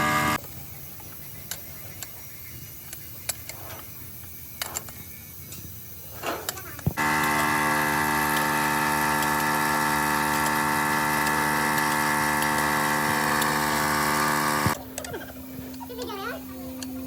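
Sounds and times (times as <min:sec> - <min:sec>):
machine running at steady pitch: 0:00.0 - 0:00.4, 0:06.9 - 0:17.0.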